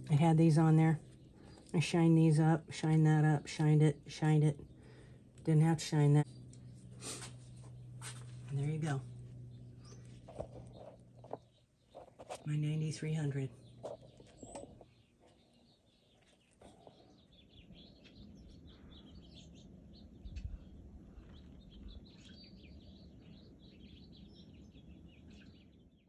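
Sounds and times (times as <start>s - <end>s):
low steady rumble: 0.0s - 16.0s
faint birds chirping: 0.0s - 26.0s.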